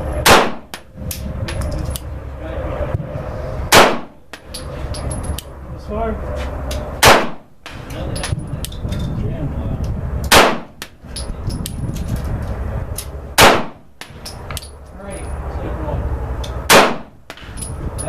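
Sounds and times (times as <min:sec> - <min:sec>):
pistol shots with ringing tail: 0:00.2 - 0:00.9, 0:03.7 - 0:04.5, 0:07.0 - 0:07.5, 0:10.3 - 0:10.9, 0:13.4 - 0:14.3, 0:16.7 - 0:17.6.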